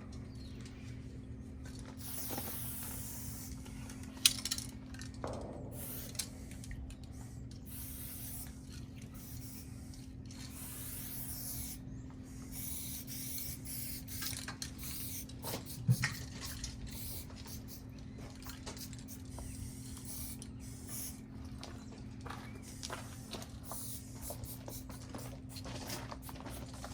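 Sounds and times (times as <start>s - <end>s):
steady low hum: 0.0s - 26.9s
spray paint can hissing: 2.0s - 3.6s, 5.7s - 6.5s, 7.2s - 8.6s, 9.2s - 11.8s, 12.4s - 17.8s, 18.4s - 21.2s, 23.2s - 26.9s.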